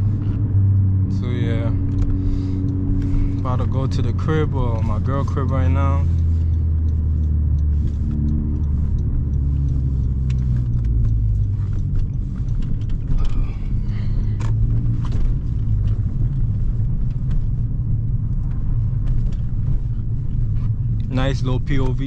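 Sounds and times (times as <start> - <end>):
car engine drone in cabin: 0.0 - 22.0
tyre and road rumble: 0.0 - 22.0
clicks and knocks from rough road: 10.3 - 17.7.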